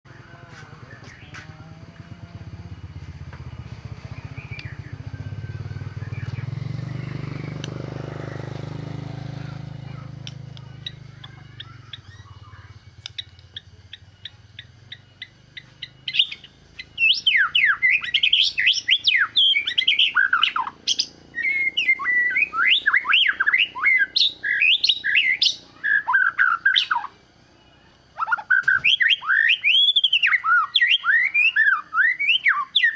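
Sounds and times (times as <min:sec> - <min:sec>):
bird singing whistled song: 0:00.8 - 0:01.5, 0:02.6 - 0:32.9
soft ticks: 0:07.6 - 0:07.8, 0:13.0 - 0:13.7.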